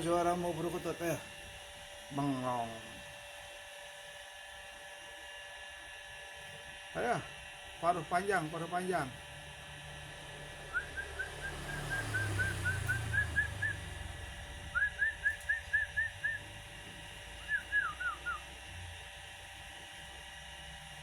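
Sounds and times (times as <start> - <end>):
songbird whistling: 10.6 - 16.6, 17.4 - 18.6.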